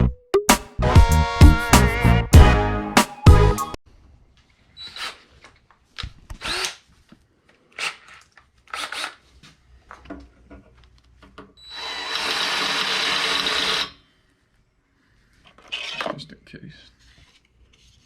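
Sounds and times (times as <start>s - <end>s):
power drill boring into metal: 11.6s - 14.0s.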